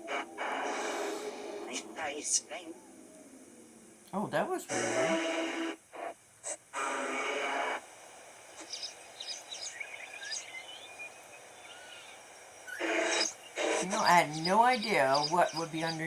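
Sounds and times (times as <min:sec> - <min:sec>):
hissing radio static bursts: 0:00.0 - 0:16.0
pet bird chirps and whistles: 0:08.6 - 0:16.0.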